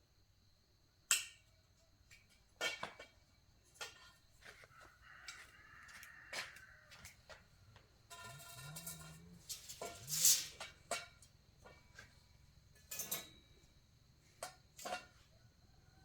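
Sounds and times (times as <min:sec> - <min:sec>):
short scraping hiss: 0:09.6 - 0:10.6.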